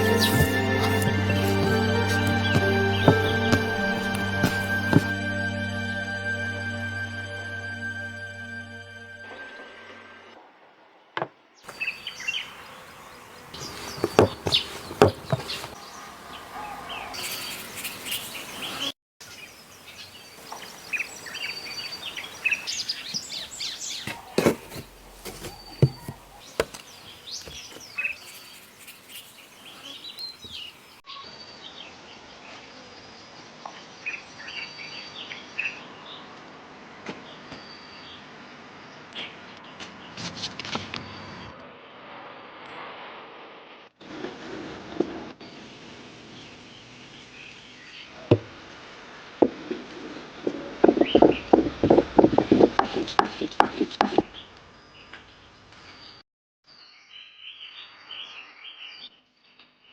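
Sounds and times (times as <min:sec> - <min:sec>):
insects buzzing: 0:00.0 - 0:05.0, 0:11.7 - 0:16.5, 0:17.1 - 0:31.0
birds chirping: 0:00.0 - 0:05.1, 0:11.7 - 0:31.0.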